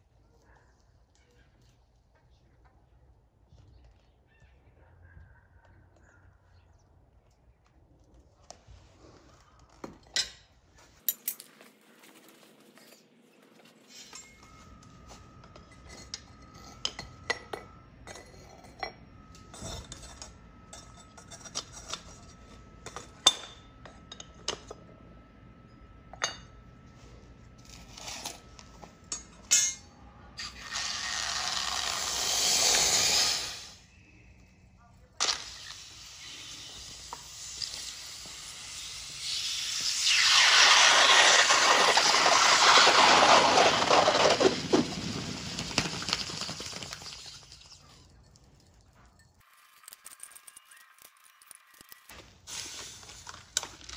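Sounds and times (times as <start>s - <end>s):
hot metal hissing in ice: 30.4s - 33.9s, 35.2s - 47.9s, 49.5s - 53.6s.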